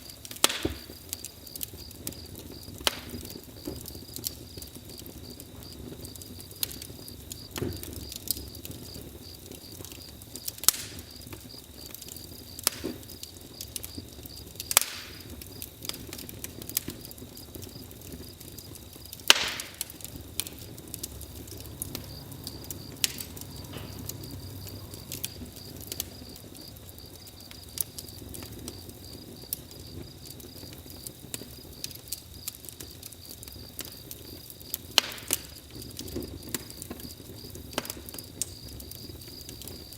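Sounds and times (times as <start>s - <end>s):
campfire crackling and popping: 0.0s - 39.9s
crickets chirping: 0.0s - 39.9s.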